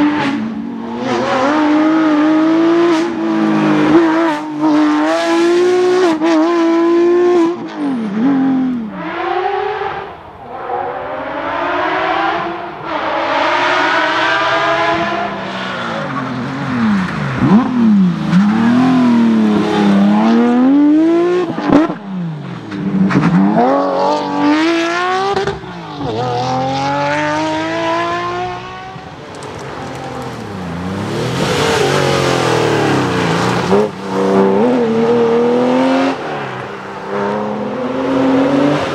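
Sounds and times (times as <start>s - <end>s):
rally car engines revving past: 0.0s - 38.9s.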